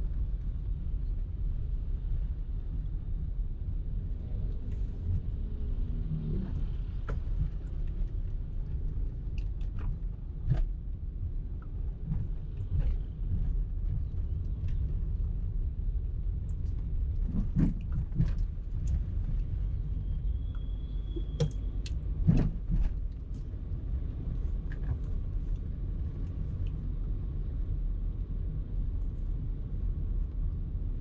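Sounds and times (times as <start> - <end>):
car road and engine rumble: 0.0 - 31.0.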